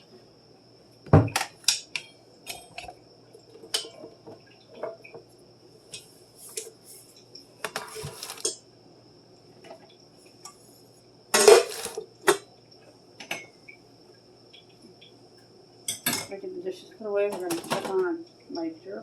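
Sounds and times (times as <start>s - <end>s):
dishes and cutlery clattering: 7.7s - 8.6s, 11.4s - 12.4s, 15.9s - 16.3s.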